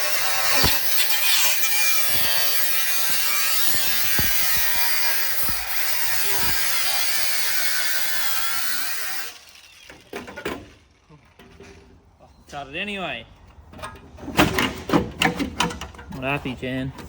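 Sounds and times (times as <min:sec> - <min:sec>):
power tool cutting sheet metal: 0:00.0 - 0:11.0.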